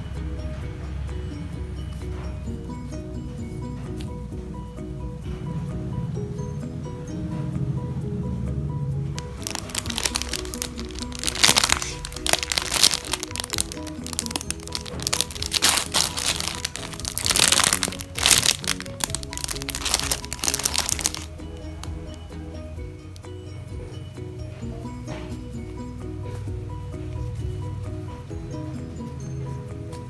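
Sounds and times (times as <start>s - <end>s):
background music: 0.0s - 30.0s
plastic packaging crinkling: 9.2s - 22.3s.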